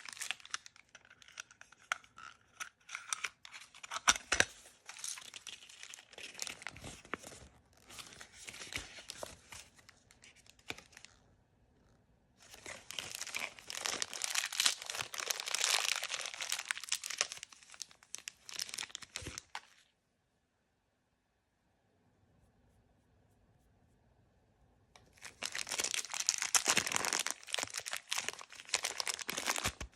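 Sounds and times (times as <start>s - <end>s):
plastic packaging being torn: 0.0s - 7.1s, 12.5s - 19.8s, 25.2s - 29.9s.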